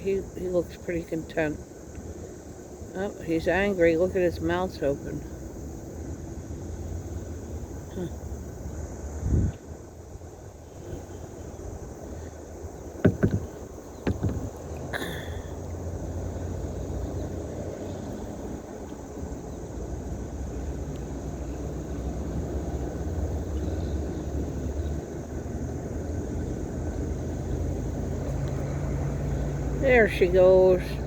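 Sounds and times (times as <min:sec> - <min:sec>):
sharp knocks: 0:13.0 - 0:15.2.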